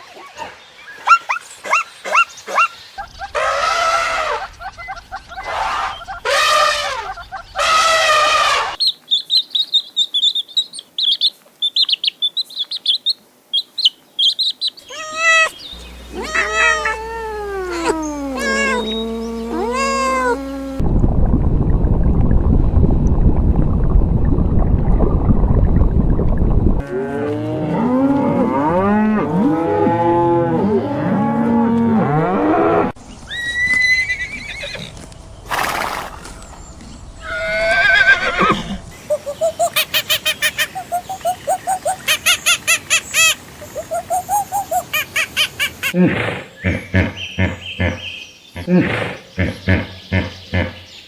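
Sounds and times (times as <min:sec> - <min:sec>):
rising and falling animal calls: 0:00.1 - 0:09.5, 0:14.2 - 0:20.8, 0:26.8 - 0:50.9
high chirps: 0:08.8 - 0:20.8
loud low rumbling: 0:15.7 - 0:26.9.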